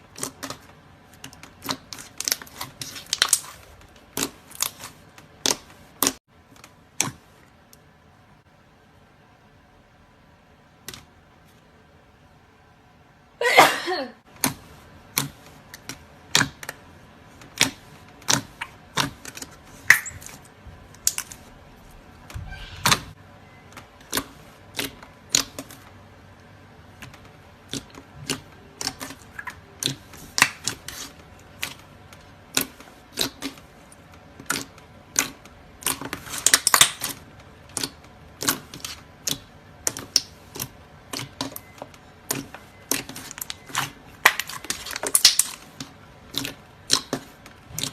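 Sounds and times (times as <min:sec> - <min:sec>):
slime clicking and popping: 0:24.0 - 0:25.7, 0:34.4 - 0:47.9.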